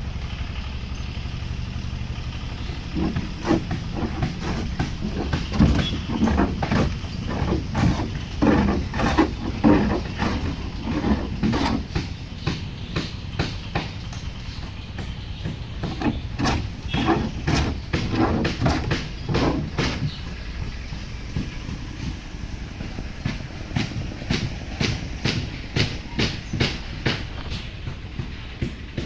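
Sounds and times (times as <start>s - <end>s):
irregular knocks: 2.9s - 14.0s, 14.6s - 22.3s.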